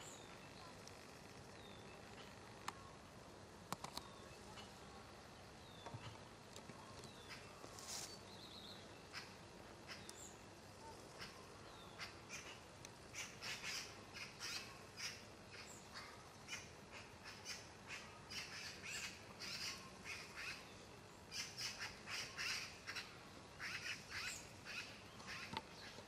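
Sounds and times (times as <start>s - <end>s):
birds calling: 5.6s - 26.0s.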